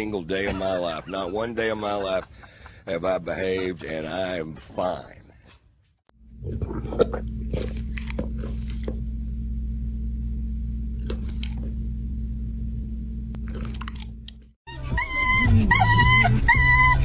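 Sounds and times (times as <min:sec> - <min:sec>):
low hum: 0:06.2 - 0:14.5
crunching and chewing: 0:06.4 - 0:09.0, 0:11.0 - 0:11.8, 0:13.4 - 0:14.5.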